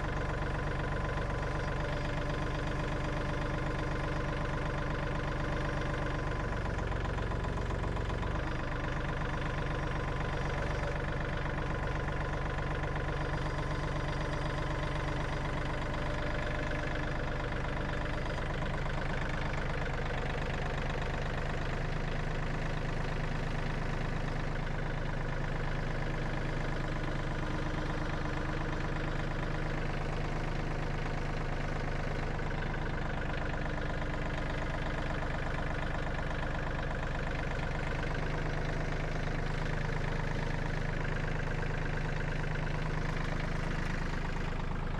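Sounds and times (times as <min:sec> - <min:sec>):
engine running: 0:00.0 - 0:44.9.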